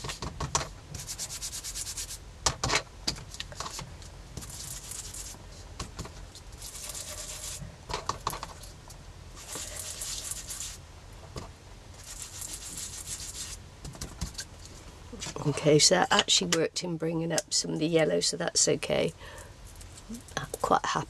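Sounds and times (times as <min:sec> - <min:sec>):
rubbing strokes on paper: 0:00.9 - 0:02.2, 0:04.4 - 0:05.7, 0:06.6 - 0:07.6, 0:09.4 - 0:10.8, 0:12.0 - 0:13.6.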